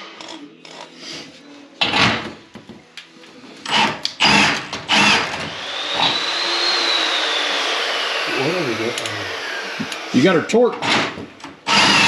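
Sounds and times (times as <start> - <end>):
cordless drill bursts: 3.7 - 12.0
steady motor whine: 4.9 - 10.4.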